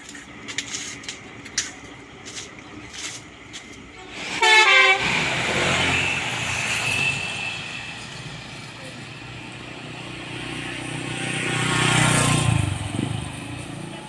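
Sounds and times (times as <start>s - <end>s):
large vehicle passing by: 0.0s - 14.0s
vehicle horn blast: 4.0s - 5.2s.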